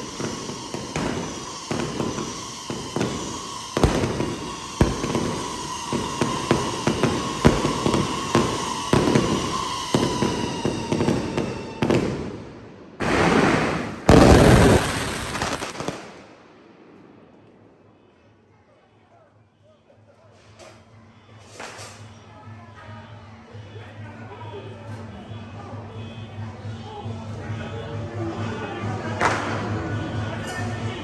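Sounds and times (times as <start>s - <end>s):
fireworks whistles sliding down: 0.0s - 12.4s, 13.0s - 16.2s
fireworks bangs and crackles: 0.0s - 17.9s, 28.4s - 31.0s.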